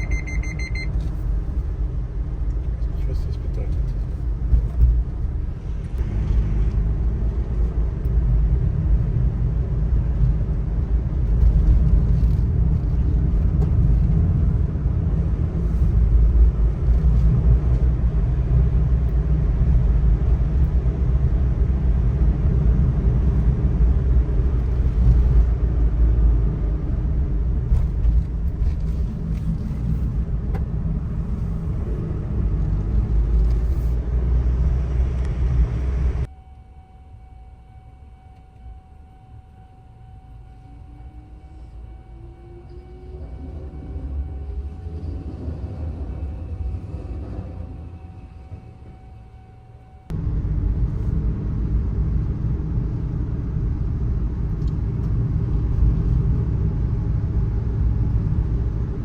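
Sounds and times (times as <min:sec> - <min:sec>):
road noise: 0:00.0 - 0:59.0
small truck engine rumble: 0:00.0 - 0:59.0.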